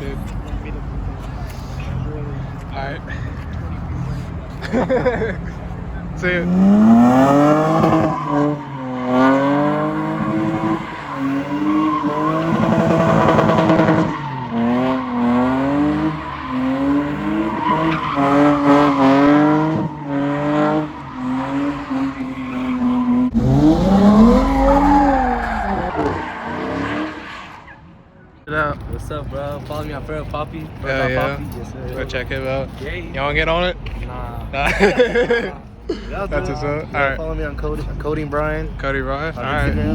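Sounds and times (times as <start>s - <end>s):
tyres squealing on pavement: 5.6s - 28.8s
car engine revving hard: 6.1s - 27.8s, 39.4s - 39.9s.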